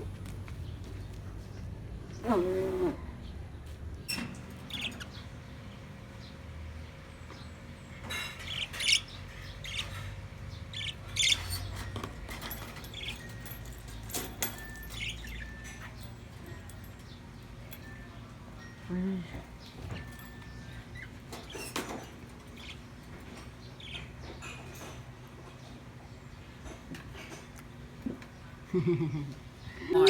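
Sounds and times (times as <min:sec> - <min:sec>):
parrots chirping and squawking: 0:04.1 - 0:05.5, 0:08.0 - 0:16.4, 0:19.7 - 0:24.9.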